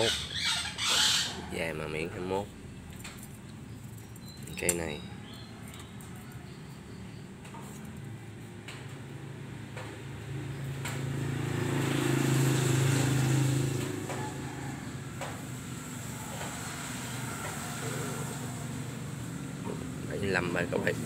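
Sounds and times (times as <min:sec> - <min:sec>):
vehicle passing by: 0:08.4 - 0:21.0.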